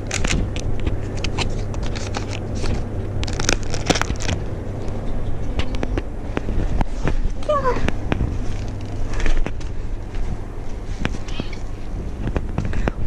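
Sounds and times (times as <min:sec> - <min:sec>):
steady low hum: 0:00.0 - 0:13.0
plastic packet crinkling: 0:01.0 - 0:04.5.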